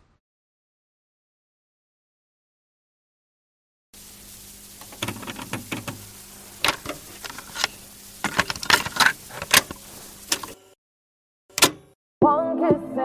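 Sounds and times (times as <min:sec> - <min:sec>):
clicks and rattles: 0:04.8 - 0:10.6.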